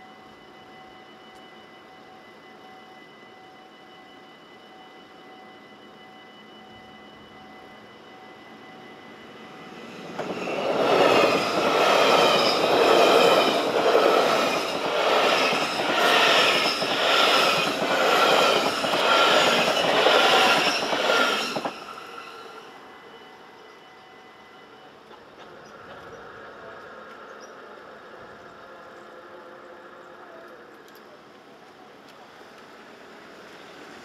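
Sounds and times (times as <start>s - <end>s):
crossing warning bell tone: 0.0s - 26.6s
train passing fast: 8.3s - 30.4s.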